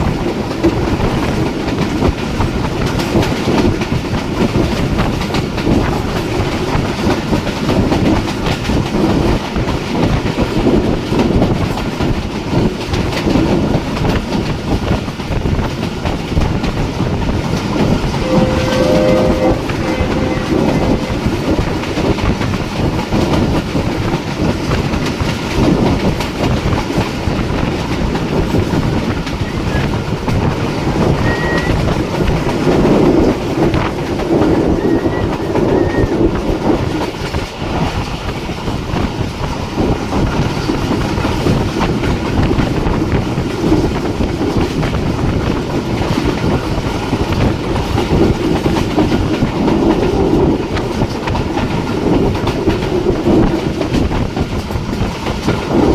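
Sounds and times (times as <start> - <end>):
train wheels clattering: 0.0 - 55.9.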